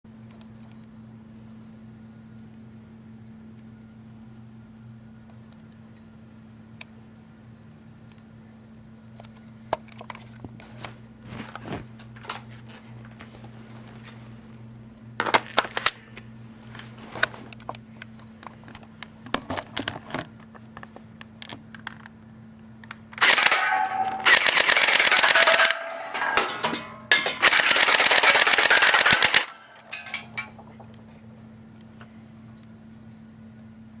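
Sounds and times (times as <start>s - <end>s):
airsoft gun full-auto bursts: 23.2s - 26.2s, 27.4s - 29.8s
airsoft gun single shots: 23.2s - 26.2s, 27.4s - 29.8s.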